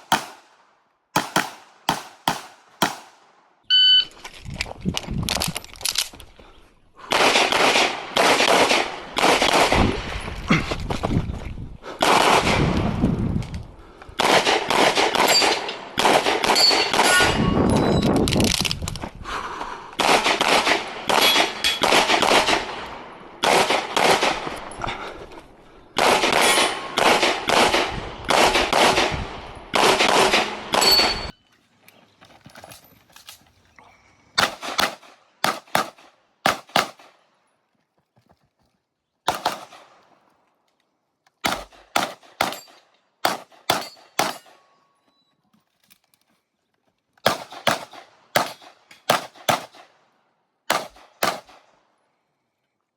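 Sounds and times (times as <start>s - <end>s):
handgun shots: 0.0s - 0.4s, 1.2s - 3.2s, 34.4s - 37.1s, 41.4s - 44.6s, 47.2s - 49.9s, 50.7s - 51.6s.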